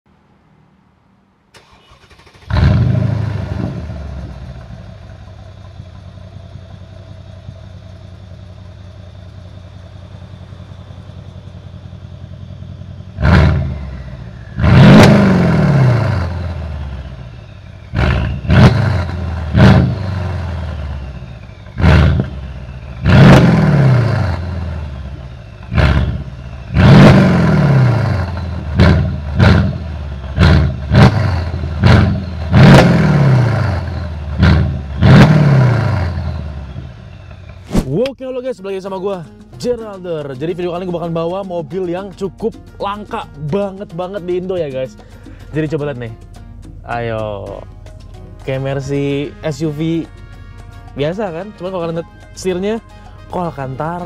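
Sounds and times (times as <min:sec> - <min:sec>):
car engine starting and idling: 0:00.9 - 0:38.4
engine revving in sharp blips: 0:01.6 - 0:04.9, 0:12.4 - 0:38.2.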